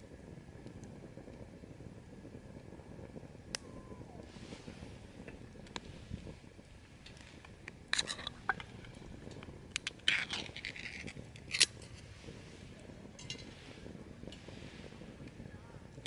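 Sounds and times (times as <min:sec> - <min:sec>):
small hard objects clicking: 0:07.0 - 0:11.8.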